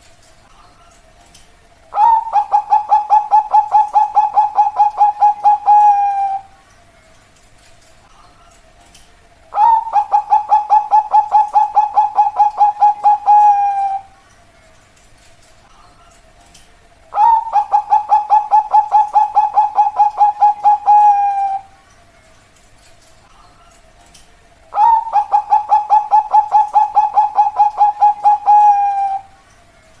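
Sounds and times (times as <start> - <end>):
dove cooing: 1.9 - 6.6, 9.5 - 14.2, 17.1 - 21.8, 24.7 - 29.4.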